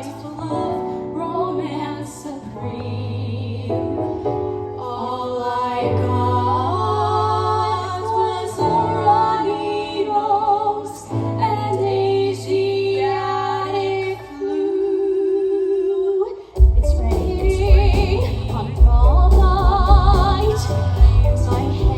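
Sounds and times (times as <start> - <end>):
woman singing with vibrato: 4.8 - 21.9
low musical accompaniment: 16.6 - 21.9.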